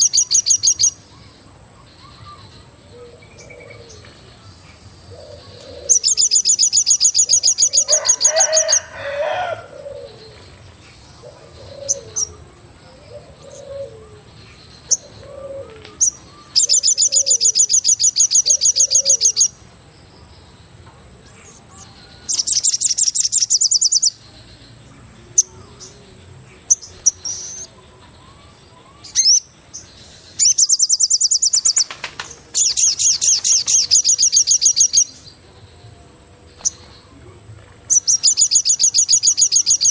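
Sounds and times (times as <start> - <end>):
dove cooing: 2.2 - 4.2, 5.1 - 6.2, 7.3 - 10.6, 11.2 - 14.3, 14.9 - 17.7, 18.3 - 19.4
bird trilling: 5.2 - 10.3, 11.2 - 14.2, 14.8 - 19.6, 22.2 - 24.2, 26.6 - 29.5, 30.4 - 35.2, 37.9 - 39.9.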